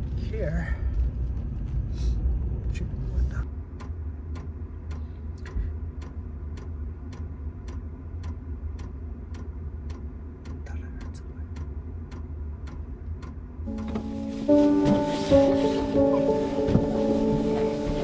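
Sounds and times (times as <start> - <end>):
even ticking: 3.5 - 14.8.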